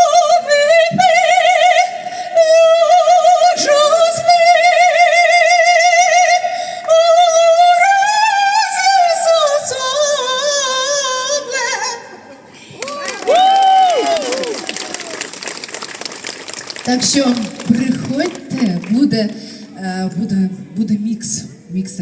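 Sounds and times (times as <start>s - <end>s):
woman singing soprano: 0.0s - 12.4s.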